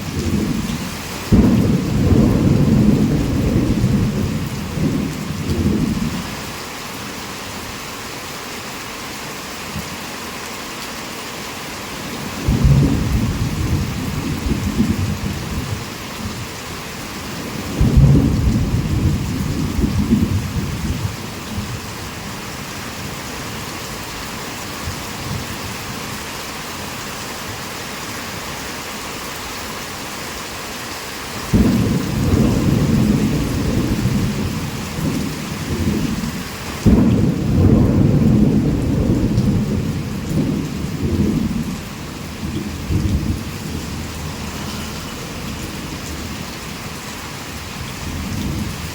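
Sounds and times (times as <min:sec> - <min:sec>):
heavy rain: 0:00.0 - 0:48.9
rolling thunder: 0:00.2 - 0:06.2, 0:12.2 - 0:16.4, 0:17.2 - 0:21.8, 0:31.5 - 0:48.9.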